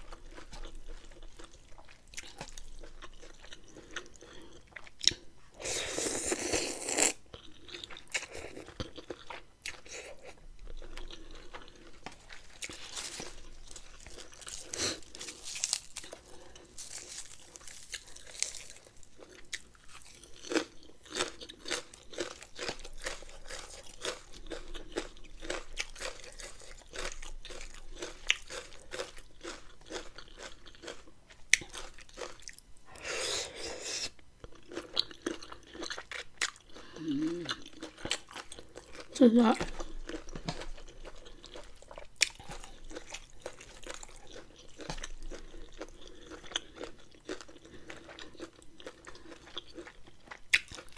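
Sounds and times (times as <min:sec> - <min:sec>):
chewing and crunching food: 0:00.0 - 0:50.9.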